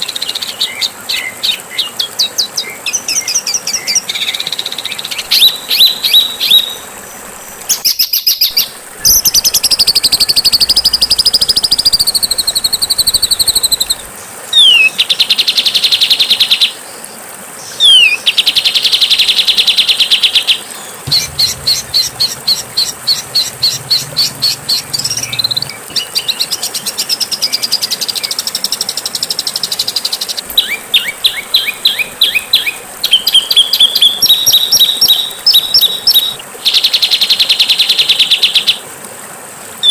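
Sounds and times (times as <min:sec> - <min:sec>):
songbird chattering and trilling: 0:07.7 - 0:14.9, 0:21.1 - 0:29.1, 0:29.8 - 0:36.4.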